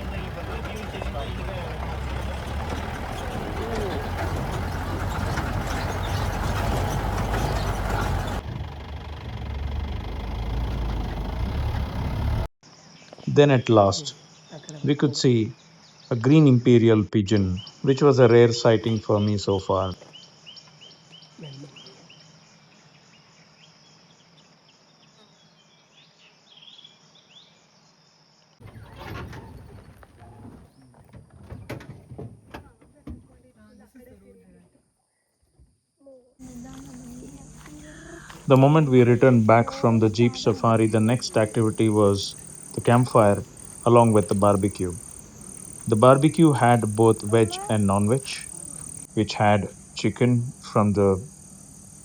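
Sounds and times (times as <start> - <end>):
engine low rumble: 0.0 - 12.5, 36.4 - 52.0
vehicle rattle: 0.0 - 12.5, 28.6 - 33.4, 36.4 - 52.0
insects trilling: 12.6 - 30.0, 36.4 - 52.0.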